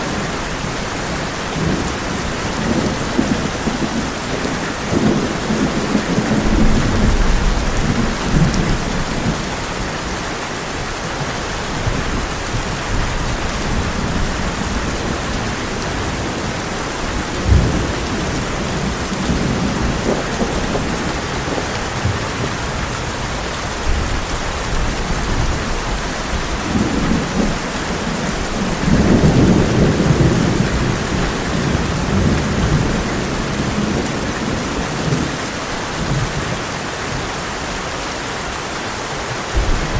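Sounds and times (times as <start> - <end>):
heavy rain on a tin roof: 0.0 - 39.9
rolling thunder: 1.6 - 10.0, 11.8 - 36.6, 39.5 - 39.9
sharp thunder crack: 39.6 - 39.9.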